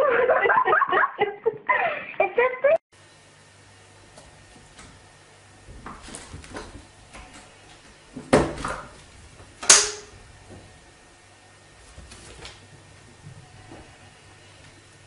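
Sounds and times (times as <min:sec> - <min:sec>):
low steady hum: 0:03.0 - 0:15.0.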